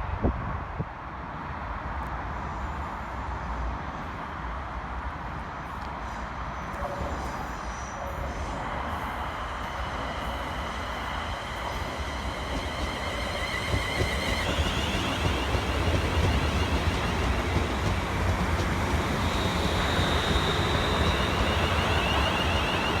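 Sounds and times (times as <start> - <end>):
train wheels rumbling on rails: 5.4 - 23.0.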